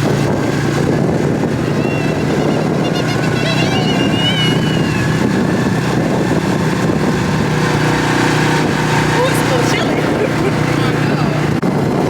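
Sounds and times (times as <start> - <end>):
atv engine running: 0.0 - 12.0
high squeaky tones: 1.8 - 5.4.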